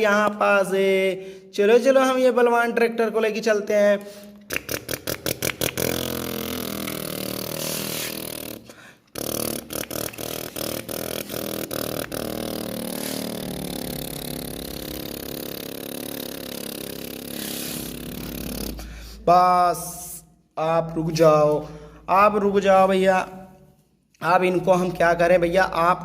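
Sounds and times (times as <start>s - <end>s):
regular clicks: 4.0s - 15.2s.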